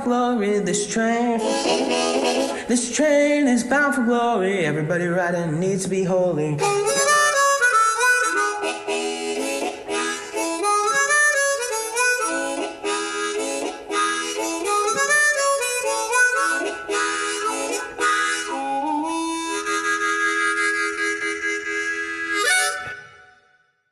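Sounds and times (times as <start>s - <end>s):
harmonica playing chords: 1.1s - 2.9s, 6.6s - 23.7s.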